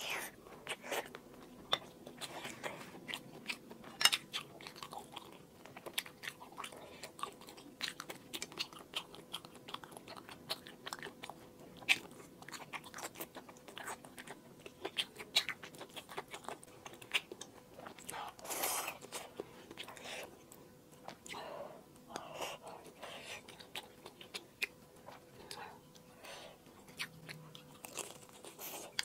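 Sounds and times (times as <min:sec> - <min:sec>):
chewing and biting: 0:00.1 - 0:21.4, 0:22.1 - 0:29.0
loud snap while chewing: 0:11.8 - 0:20.0.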